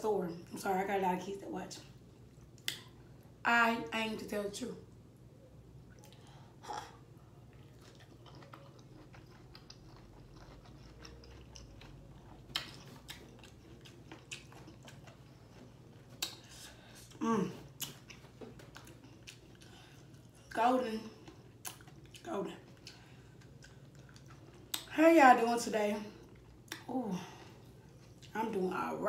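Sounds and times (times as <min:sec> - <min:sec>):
person chewing wetly: 0:05.9 - 0:20.5, 0:21.1 - 0:24.9, 0:26.2 - 0:26.9.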